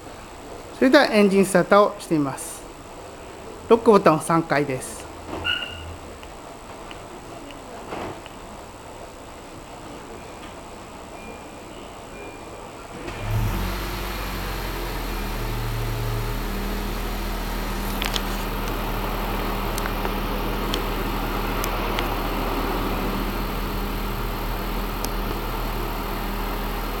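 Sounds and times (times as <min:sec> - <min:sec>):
car engine starting and idling: 0:12.9 - 0:27.0.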